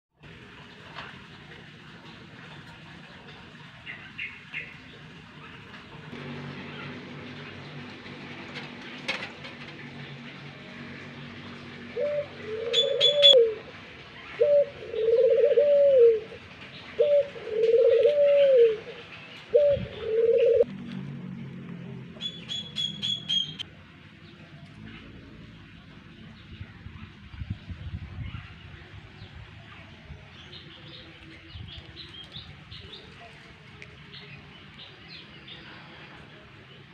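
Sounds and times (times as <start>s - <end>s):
birds chirping: 3.8s - 20.7s, 22.2s - 36.9s
pigeon cooing: 11.9s - 13.7s, 14.3s - 20.7s.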